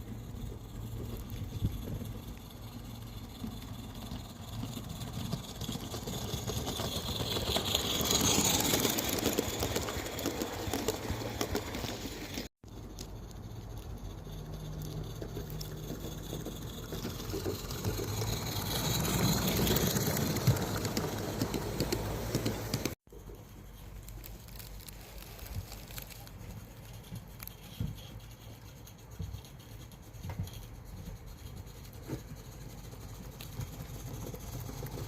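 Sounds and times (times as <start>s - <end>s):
steam locomotive exhaust and hiss: 14.1s - 23.0s.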